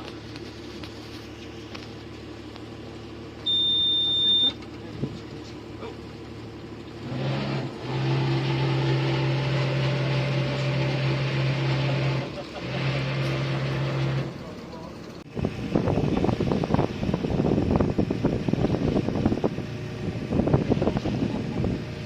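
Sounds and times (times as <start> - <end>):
boat engine running: 0.0 - 22.0
high electronic beep: 3.5 - 4.6.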